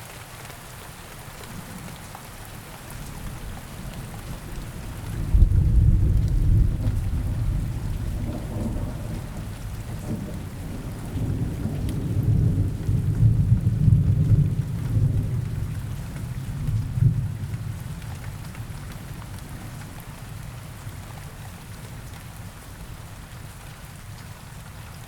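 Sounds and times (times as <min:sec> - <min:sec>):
steady rain falling: 0:00.0 - 0:25.0
low rolling thunder: 0:02.9 - 0:21.0.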